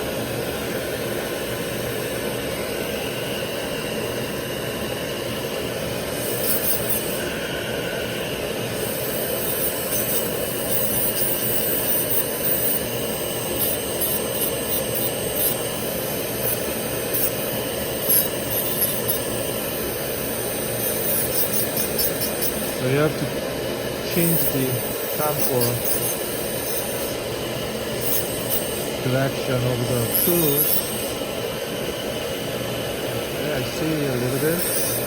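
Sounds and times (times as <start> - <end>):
dental handpiece grinding: 6.1 - 7.4, 8.8 - 31.4, 33.8 - 35.0.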